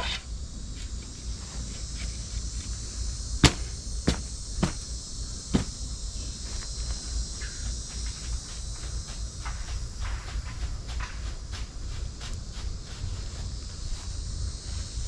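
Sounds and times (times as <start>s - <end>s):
crickets chirping: 0.0s - 15.0s
sharp knocks: 3.4s - 4.9s, 5.5s - 5.8s.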